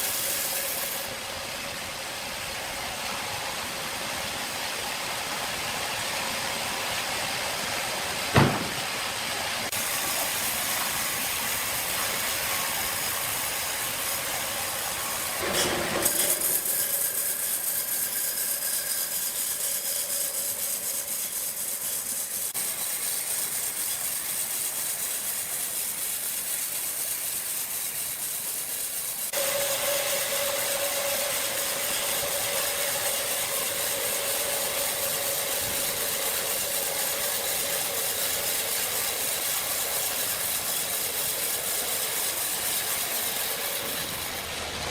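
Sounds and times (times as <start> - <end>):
sawmill machinery running: 0.0 - 44.9
sharp knock: 8.3 - 8.8.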